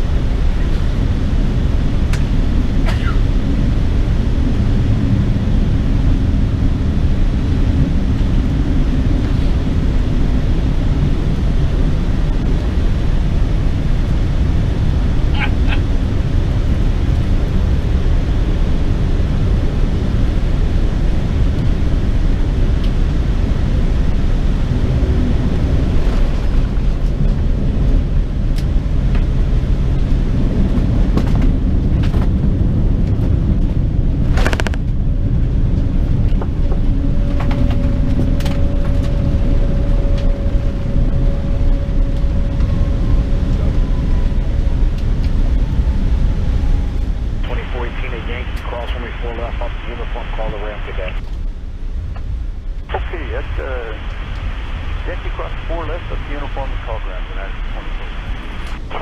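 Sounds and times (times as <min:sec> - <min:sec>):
airplane cabin engine rumble: 0:00.0 - 0:59.0
steady hum: 0:47.2 - 0:59.0.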